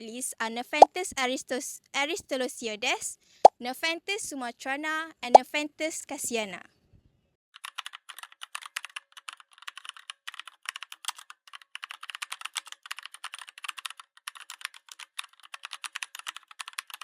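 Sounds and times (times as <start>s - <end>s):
rapid keyboard typing: 7.6s - 17.0s.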